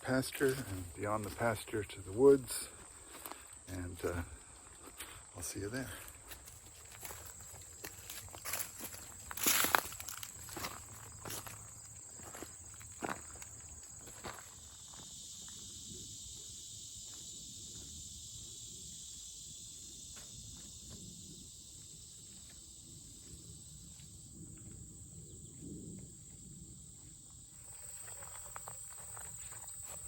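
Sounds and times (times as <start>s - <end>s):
high chorus of insects: 0.0s - 30.0s
soft footsteps on trail: 0.2s - 18.0s, 27.0s - 30.0s.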